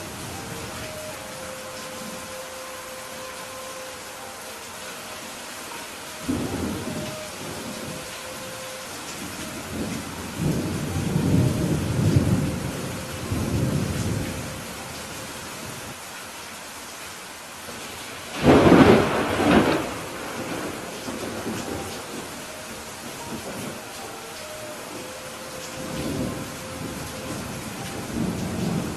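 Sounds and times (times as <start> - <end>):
steady rain: 0.0 - 28.9
rolling thunder rumble: 6.2 - 14.8, 18.3 - 23.9
sharp thunderclap: 18.4 - 21.6.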